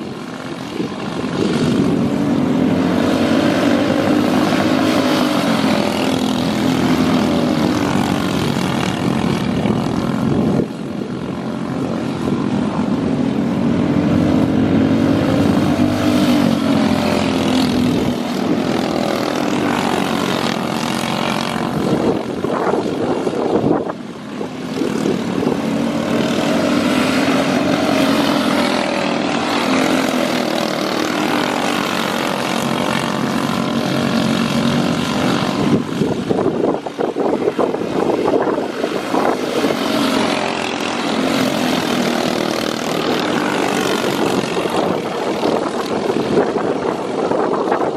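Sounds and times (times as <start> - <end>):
small engines revving: 0.0 - 47.9.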